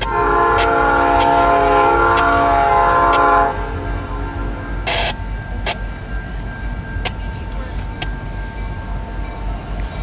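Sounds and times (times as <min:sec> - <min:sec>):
locomotive horn chord: 0:00.0 - 0:05.2
low locomotive rumble: 0:00.0 - 0:10.0.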